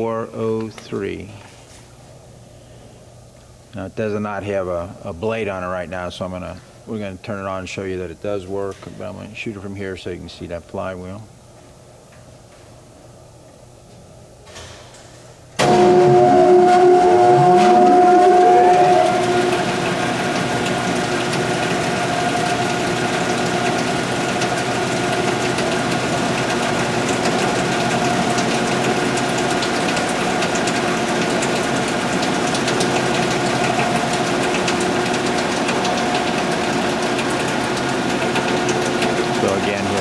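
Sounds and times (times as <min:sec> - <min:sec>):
band saw motor humming with whine: 0:15.6 - 0:40.0.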